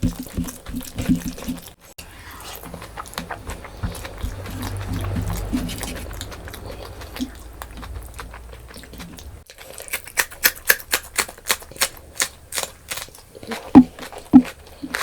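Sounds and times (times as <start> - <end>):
soft chewing: 0.0 - 15.0
crunchy chewing clicks: 2.4 - 15.0
low rumble: 2.6 - 9.4.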